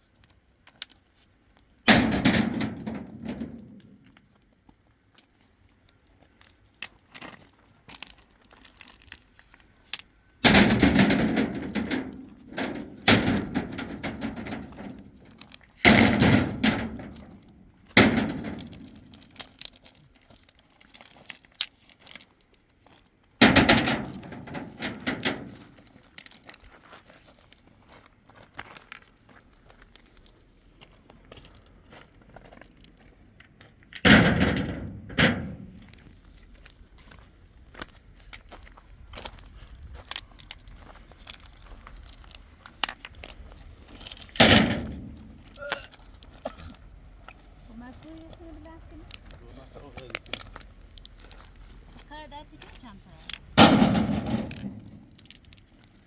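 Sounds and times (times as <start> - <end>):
large stones cracking and clattering: 1.8 - 4.4, 6.0 - 27.7, 37.8 - 56.0.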